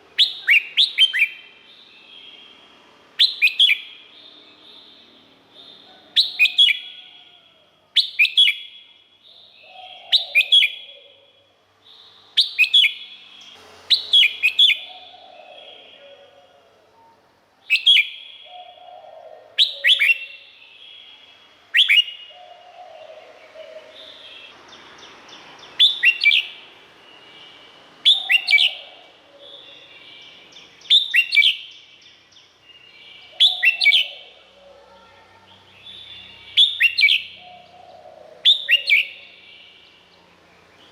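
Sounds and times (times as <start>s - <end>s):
bird singing whistled phrases: 0.2s - 2.4s, 3.2s - 3.9s, 8.0s - 8.8s, 12.4s - 13.1s, 13.9s - 16.2s, 17.7s - 18.8s, 19.6s - 22.3s, 25.8s - 26.6s, 28.0s - 28.9s, 29.5s - 31.8s, 32.8s - 34.2s, 35.9s - 37.4s, 38.4s - 39.7s.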